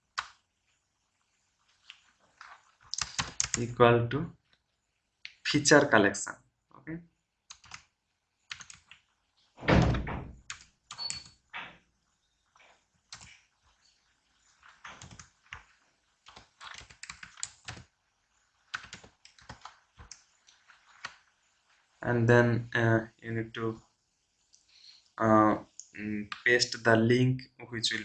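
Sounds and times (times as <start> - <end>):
keyboard typing: 1.9 - 3.7, 7.5 - 7.9, 8.5 - 9.1, 10.4 - 11.4, 13.1 - 13.4, 14.6 - 17.9, 18.6 - 21.2, 26.3 - 26.6.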